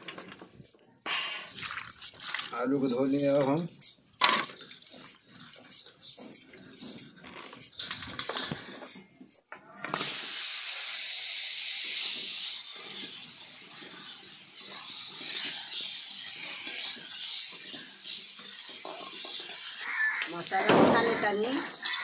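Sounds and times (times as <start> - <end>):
loud hiss of steam: 9.9 - 18.4
food sizzling in hot oil: 9.9 - 20.6.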